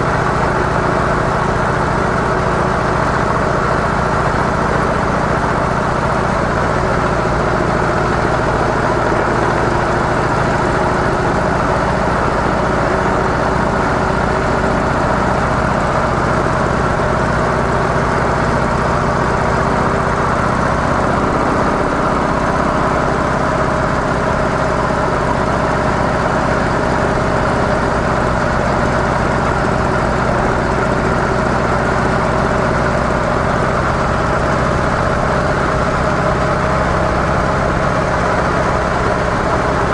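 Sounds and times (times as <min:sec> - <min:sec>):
motorcycle engine running steadily: 0:00.0 - 0:39.9
steady rush of noise: 0:03.3 - 0:39.9.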